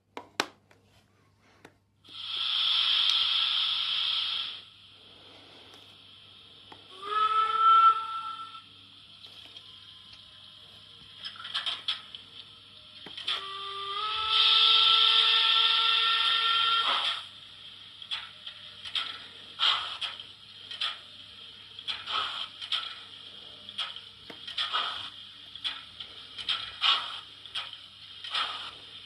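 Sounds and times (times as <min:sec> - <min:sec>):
model train wheels rattling on track: 0:11.3 - 0:12.1, 0:18.1 - 0:21.1, 0:21.8 - 0:23.1, 0:23.7 - 0:29.0.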